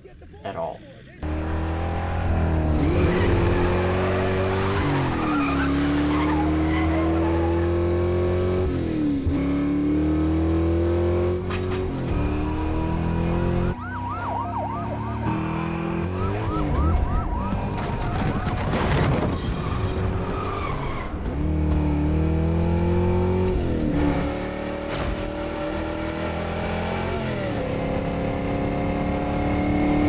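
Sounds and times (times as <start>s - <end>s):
car engine accelerating hard: 1.2s - 13.8s, 19.9s - 30.0s
police siren wailing: 13.4s - 19.3s.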